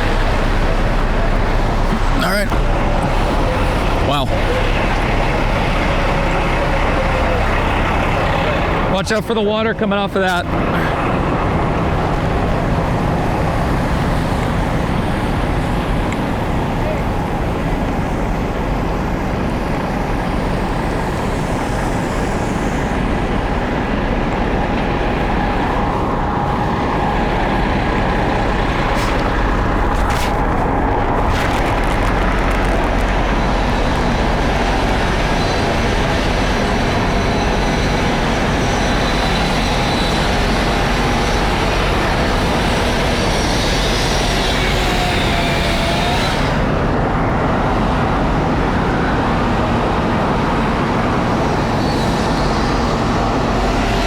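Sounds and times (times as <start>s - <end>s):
wind and rain: 0.0s - 9.6s, 10.3s - 54.0s
large vehicle engine running: 0.0s - 54.0s.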